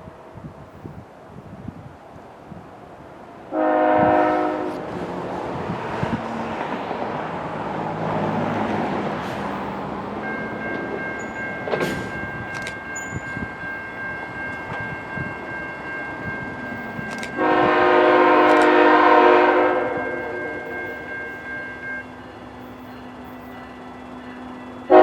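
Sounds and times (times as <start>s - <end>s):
passing train: 0.0s - 25.0s
locomotive air horn blast: 3.5s - 5.0s, 17.2s - 20.8s
sharp clicks: 11.8s - 12.8s, 17.0s - 17.4s.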